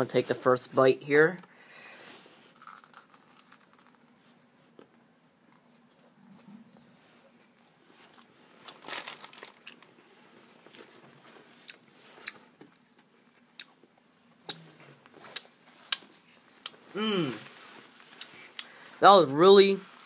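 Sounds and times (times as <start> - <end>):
bread crunching: 2.5 - 4.9, 8.0 - 10.0.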